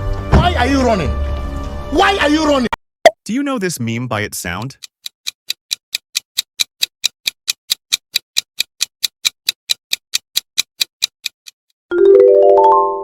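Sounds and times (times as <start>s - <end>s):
clock ticking: 3.3s - 11.6s.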